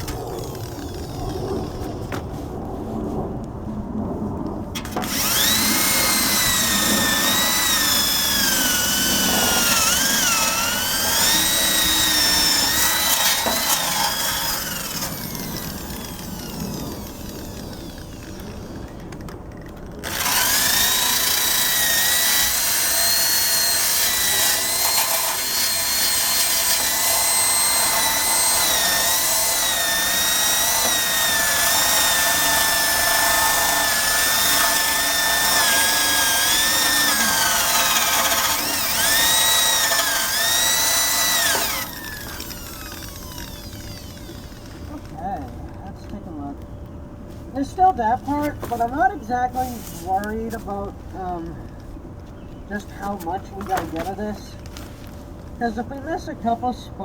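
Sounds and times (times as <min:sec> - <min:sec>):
drill wire brush on metal: 0:04.8 - 0:19.1, 0:20.0 - 0:45.4.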